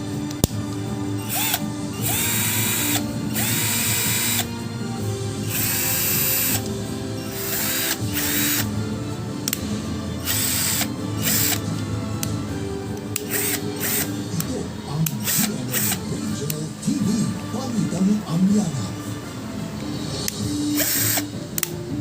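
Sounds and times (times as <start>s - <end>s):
background music: 0.0s - 22.0s
cordless drill motor whining: 1.2s - 8.8s, 10.2s - 11.7s, 13.2s - 14.3s, 15.1s - 16.1s, 20.7s - 21.3s.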